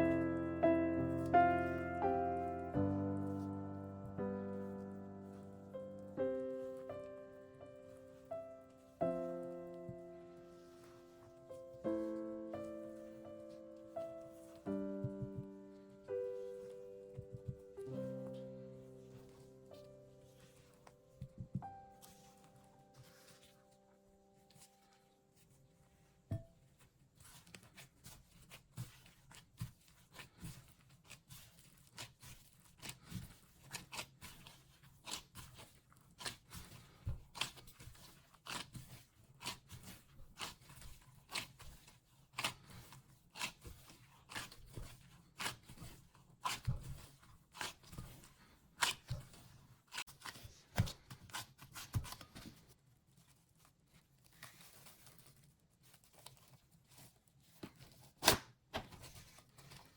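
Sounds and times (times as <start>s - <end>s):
dough tapped and scraped on surface: 26.3s - 52.8s.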